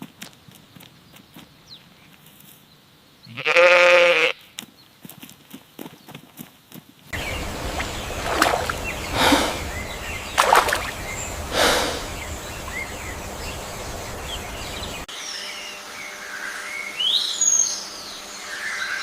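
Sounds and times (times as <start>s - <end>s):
faint bird chirps: 7.2s - 15.1s
steady low rumble: 7.2s - 15.1s.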